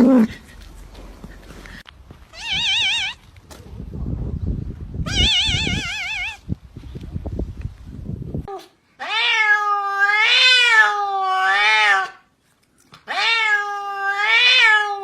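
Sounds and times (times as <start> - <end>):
cat meowing: 2.3 - 3.2, 5.1 - 6.4, 8.5 - 12.2, 13.1 - 15.0.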